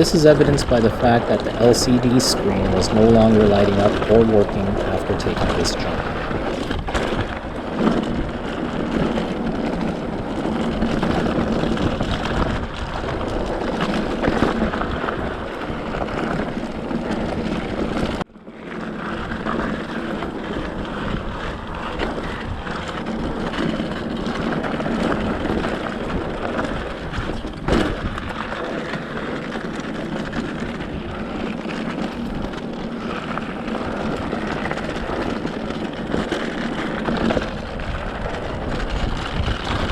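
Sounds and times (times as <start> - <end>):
faint steady hum: 0.0 - 6.7
wind buffeting microphone: 0.0 - 39.9
bike tyres rumbling on dirt: 5.7 - 39.9.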